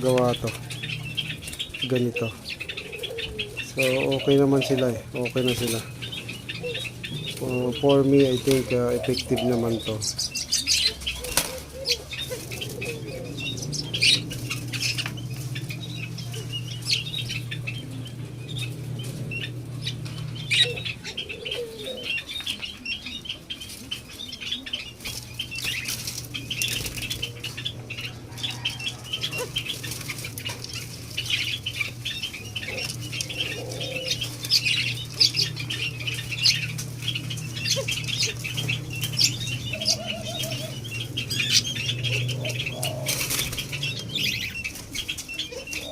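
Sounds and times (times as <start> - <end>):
steady low hum: 0.0 - 45.9
doves flapping wings: 10.8 - 20.8, 24.9 - 45.9.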